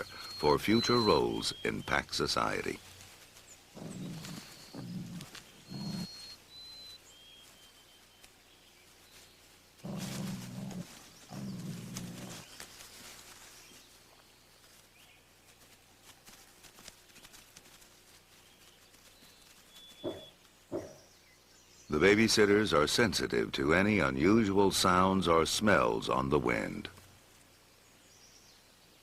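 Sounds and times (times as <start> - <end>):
wolf pups growling: 3.7 - 6.4, 9.8 - 12.7, 20.0 - 21.1.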